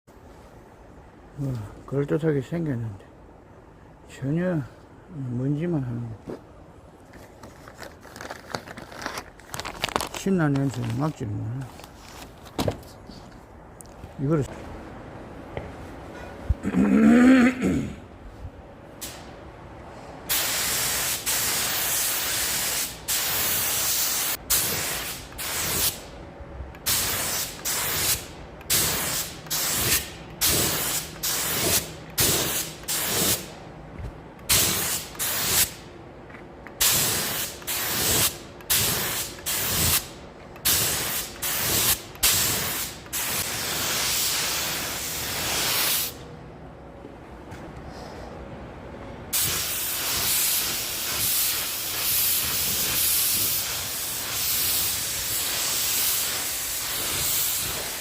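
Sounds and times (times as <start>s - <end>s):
paint spray gun hissing: 20.3s - 26.0s, 26.8s - 33.5s, 36.8s - 46.2s, 49.4s - 58.0s.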